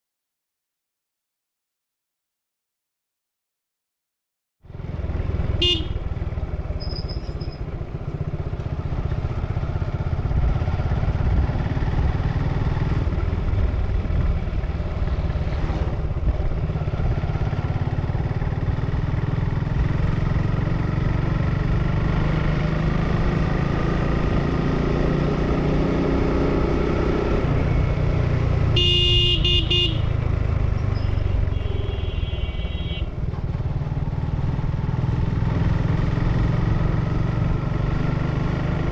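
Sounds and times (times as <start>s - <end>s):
motorcycle engine running: 4.7s - 38.9s
vehicle horn: 5.6s - 6.1s, 28.7s - 30.2s, 31.0s - 33.2s.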